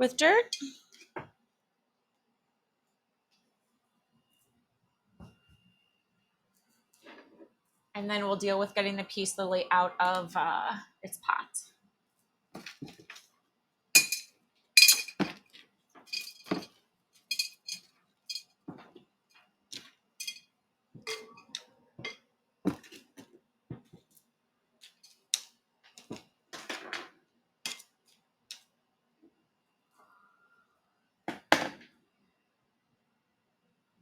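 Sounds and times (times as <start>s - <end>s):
soil scooping scrapes and clinks: 16.1s - 18.5s.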